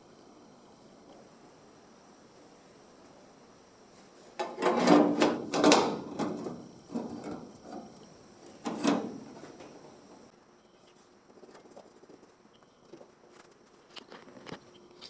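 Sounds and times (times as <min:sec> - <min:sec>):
objects clattering knocks and scrapes: 0:04.4 - 0:10.0.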